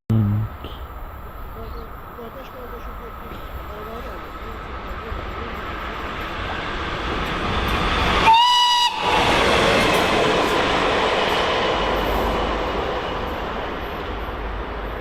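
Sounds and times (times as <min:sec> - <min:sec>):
train rolling on rails: 0:00.8 - 0:15.0
train horn blast: 0:08.2 - 0:09.3.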